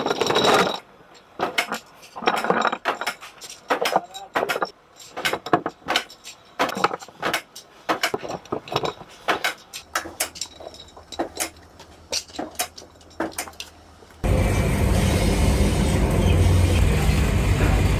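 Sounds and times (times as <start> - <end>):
small hard parts clinking: 0.0 - 14.2
low steady hum: 13.7 - 17.9.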